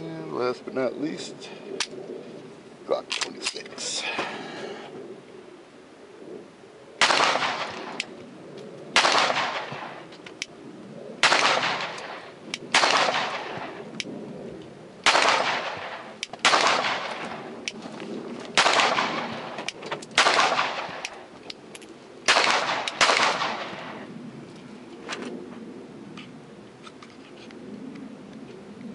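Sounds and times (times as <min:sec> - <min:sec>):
pistol shots with echo: 0:07.0 - 0:08.1, 0:09.0 - 0:10.0, 0:11.2 - 0:13.8, 0:15.0 - 0:17.5, 0:18.6 - 0:21.2, 0:22.3 - 0:24.0.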